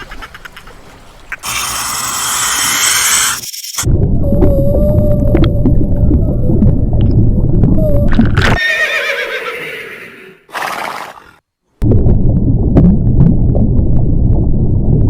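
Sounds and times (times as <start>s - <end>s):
low rumbling noise: 3.9s - 8.4s, 11.8s - 15.0s
horse whinnying: 8.4s - 11.4s.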